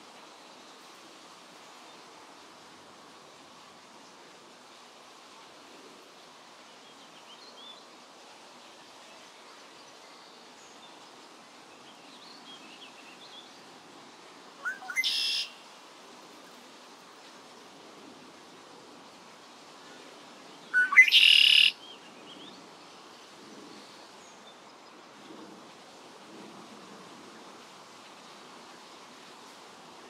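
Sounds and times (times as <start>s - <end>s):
steady outdoor hiss: 0.0s - 30.0s
faint bird chirps: 14.6s - 15.6s, 20.7s - 21.8s
loud bird call: 14.6s - 15.6s, 20.8s - 21.8s.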